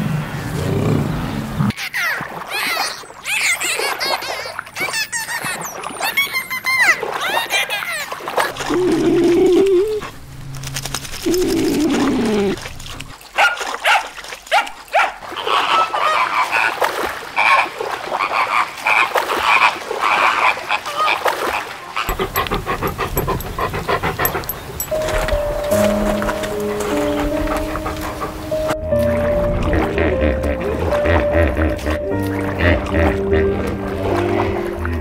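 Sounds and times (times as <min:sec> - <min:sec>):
dogs whining: 0:22.0 - 0:29.2
dogs yelping and barking: 0:22.0 - 0:29.2.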